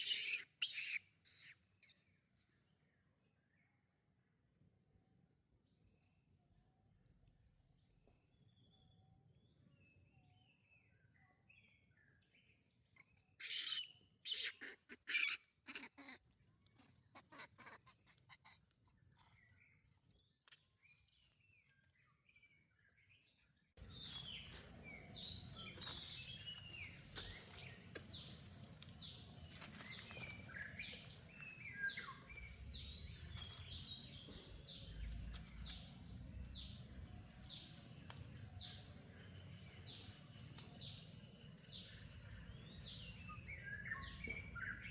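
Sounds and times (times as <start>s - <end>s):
sharp squeaky animal calls: 0.0s - 2.0s, 13.4s - 16.2s
steady high whine: 23.8s - 44.9s.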